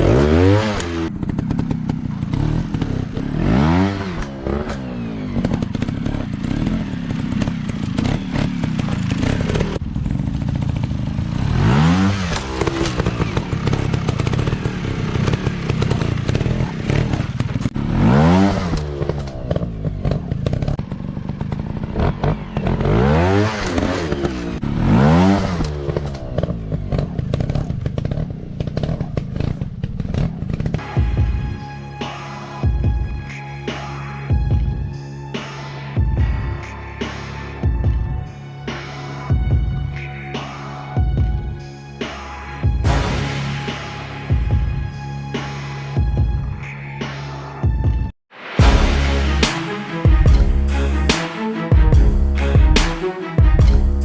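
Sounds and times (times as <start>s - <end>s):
dirt bike engine revving: 0.0s - 31.4s.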